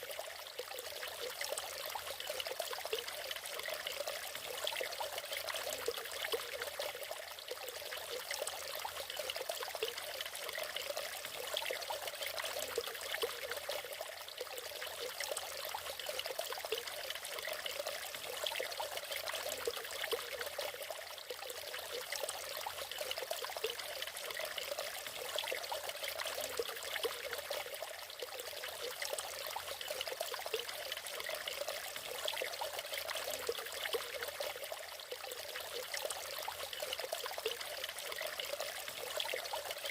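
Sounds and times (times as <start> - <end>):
waterfall splashing and trickling: 0.0 - 39.9.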